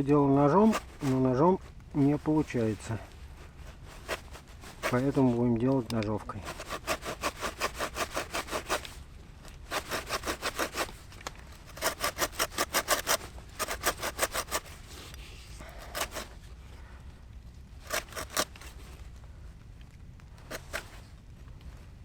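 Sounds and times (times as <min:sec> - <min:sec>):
handsaw cutting wood: 0:04.0 - 0:05.2, 0:06.4 - 0:09.0, 0:09.7 - 0:14.8, 0:15.8 - 0:16.3, 0:17.8 - 0:18.7, 0:20.5 - 0:20.9.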